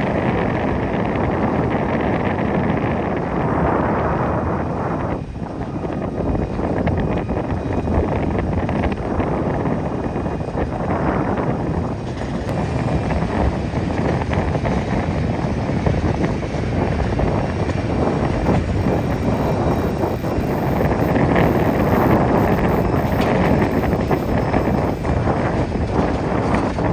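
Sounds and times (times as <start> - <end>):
wind buffeting microphone: 0.0 - 26.9
jet engines roaring: 12.0 - 26.9.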